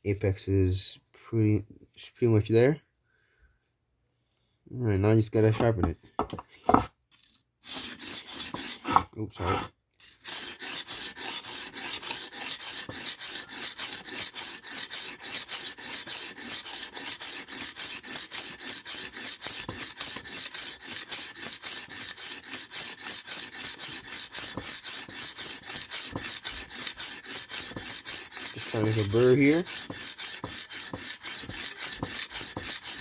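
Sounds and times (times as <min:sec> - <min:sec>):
knife scraping on whetstone: 0:06.3 - 0:06.9, 0:07.6 - 0:33.0.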